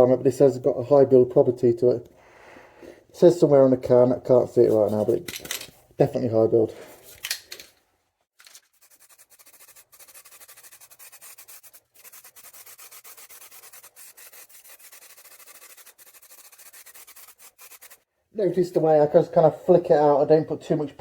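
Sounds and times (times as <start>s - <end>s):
aerosol can spraying: 8.8s - 18.0s.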